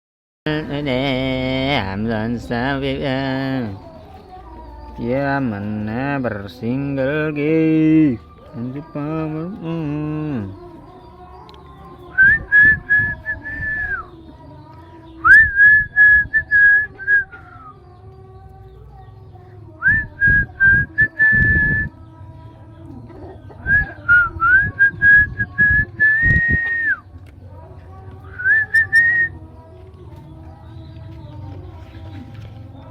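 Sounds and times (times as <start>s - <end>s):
person whistling: 12.2s - 14.0s, 15.2s - 17.7s, 19.8s - 21.9s, 23.7s - 27.0s, 28.4s - 29.3s.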